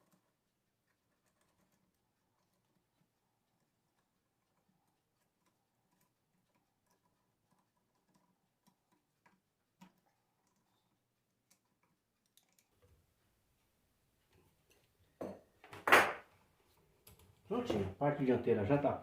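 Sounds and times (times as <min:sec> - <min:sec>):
faint small clicks and taps: 0:00.0 - 0:13.0, 0:17.0 - 0:17.5.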